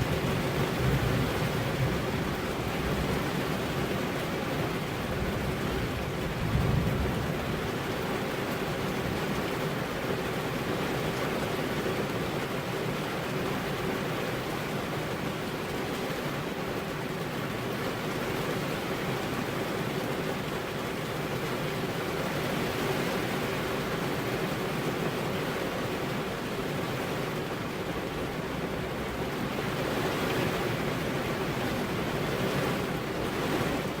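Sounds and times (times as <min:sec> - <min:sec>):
steady rain: 0:00.0 - 0:34.0.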